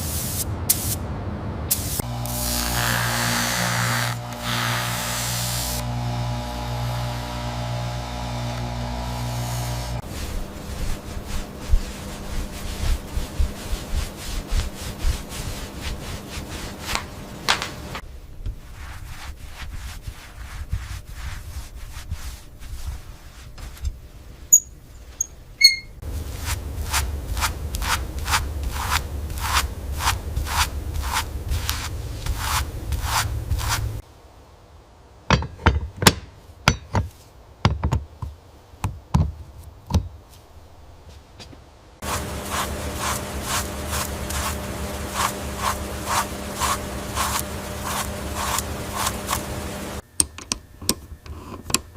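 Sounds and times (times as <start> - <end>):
low hum: 1.3 - 17.5
rubbing strokes on hard surface: 10.0 - 17.4, 18.5 - 24.4, 26.0 - 34.0, 42.0 - 50.0.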